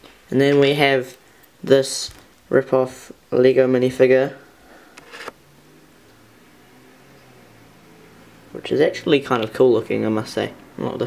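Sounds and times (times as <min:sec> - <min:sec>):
faint steady hum: 0:00.0 - 0:11.0
brief rustle: 0:04.9 - 0:05.4.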